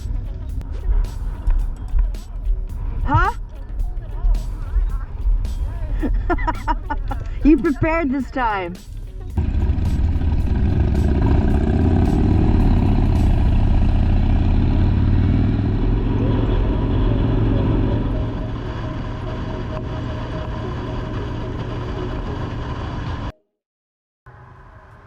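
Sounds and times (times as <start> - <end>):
motorcycle engine rumble: 0.0 - 23.3.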